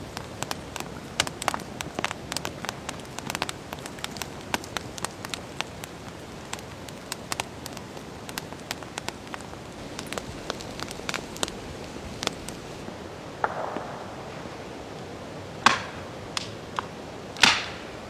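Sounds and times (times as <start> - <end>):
rain hiss: 0.0 - 18.0
loud sharp crack: 13.4 - 14.5, 15.6 - 16.6, 17.4 - 17.9.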